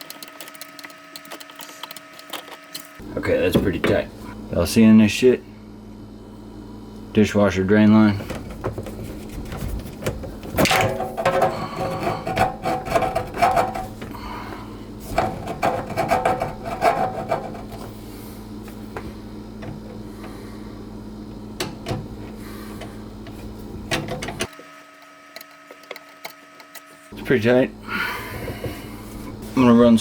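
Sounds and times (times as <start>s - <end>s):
steady low hum: 0.1s - 30.0s
hose rubbing and scraping: 11.2s - 14.2s, 15.0s - 18.1s.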